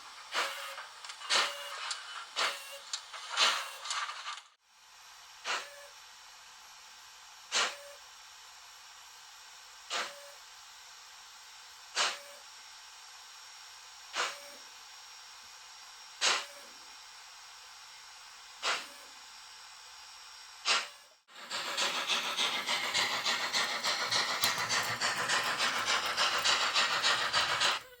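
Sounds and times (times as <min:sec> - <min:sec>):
model locomotive steam puffs: 0:00.0 - 0:04.5, 0:07.5 - 0:08.0, 0:09.8 - 0:10.4, 0:11.9 - 0:12.4, 0:14.1 - 0:14.6, 0:18.6 - 0:19.1, 0:20.6 - 0:28.0
smoke fan whine: 0:21.3 - 0:27.9
loud fluttering hiss: 0:21.4 - 0:27.8.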